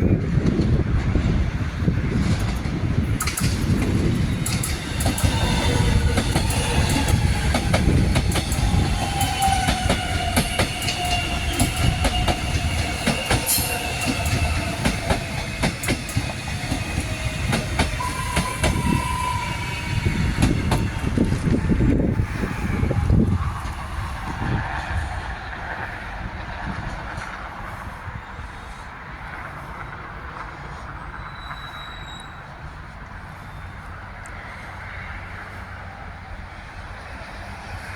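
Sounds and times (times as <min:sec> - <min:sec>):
train rumbling on track: 0:00.0 - 0:37.9
wheels clicking over rail joints: 0:00.2 - 0:19.1
train whine falling in pitch: 0:03.1 - 0:24.6.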